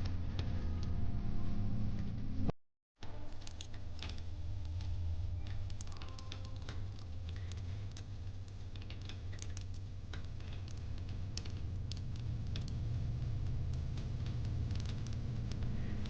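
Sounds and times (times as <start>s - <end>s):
low steady rumble: 3.2s - 16.0s
fire pit crackling: 3.3s - 16.0s.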